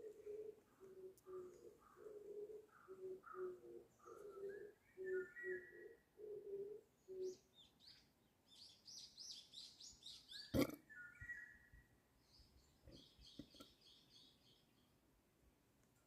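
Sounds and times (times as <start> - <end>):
dove cooing: 0.0 - 7.4
songbird twittering chirps: 0.6 - 6.0, 7.0 - 15.0
whistled bird notes: 4.3 - 5.9, 8.9 - 11.9.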